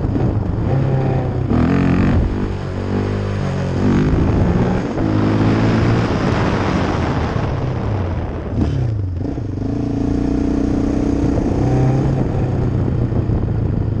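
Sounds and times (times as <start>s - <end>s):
quad engine revving: 0.0s - 6.9s, 8.6s - 12.6s.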